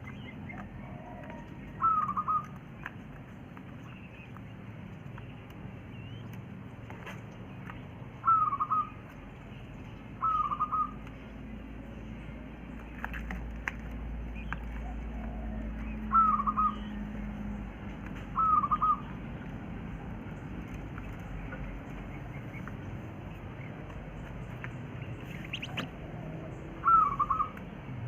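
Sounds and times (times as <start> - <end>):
quail calling: 0.0 - 2.6, 8.2 - 9.1, 10.2 - 11.0, 14.3 - 17.0, 18.3 - 19.2, 25.0 - 27.6.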